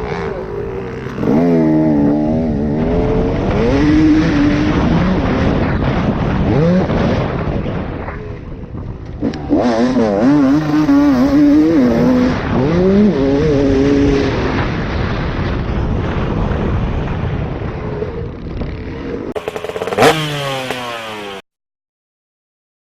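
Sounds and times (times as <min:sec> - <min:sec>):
dirt bike engines revving: 0:00.0 - 0:21.4
rush of track noise: 0:00.0 - 0:21.4.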